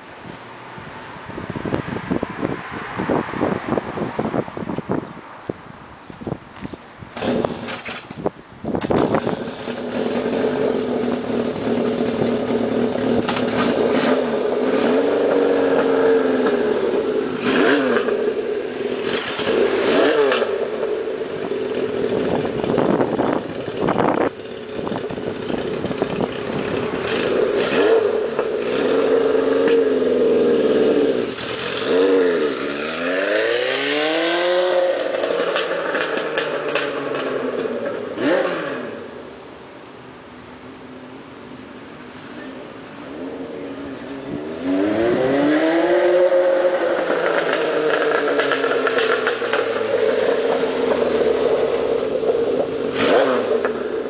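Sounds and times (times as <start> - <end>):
motorcycle engine revving: 7.1 - 39.3, 43.0 - 54.0.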